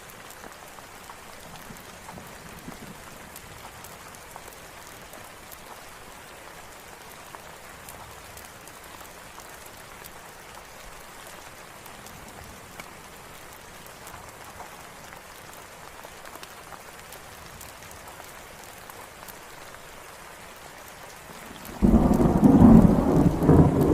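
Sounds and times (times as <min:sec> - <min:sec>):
steady rain: 0:00.0 - 0:23.9
thunder rumble: 0:21.5 - 0:23.9.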